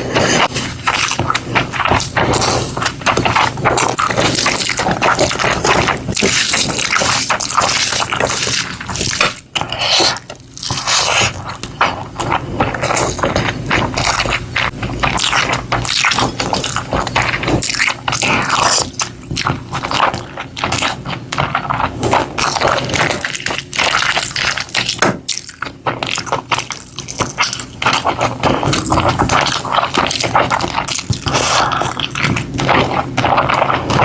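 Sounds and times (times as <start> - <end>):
food scraping and crackling: 0.0 - 34.0.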